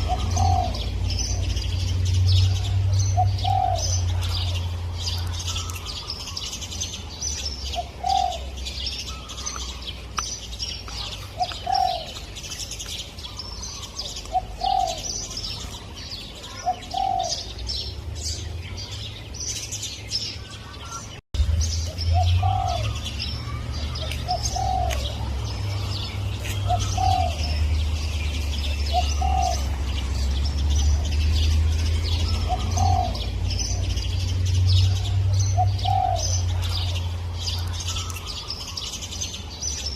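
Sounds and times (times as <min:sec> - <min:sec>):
dove cooing: 0:00.0 - 0:01.8, 0:02.4 - 0:06.4, 0:07.7 - 0:09.8, 0:11.0 - 0:12.3, 0:13.3 - 0:15.8, 0:16.4 - 0:17.6, 0:22.1 - 0:27.8, 0:28.6 - 0:31.2, 0:31.9 - 0:34.0, 0:34.8 - 0:37.0
small birds chirping: 0:00.0 - 0:39.9.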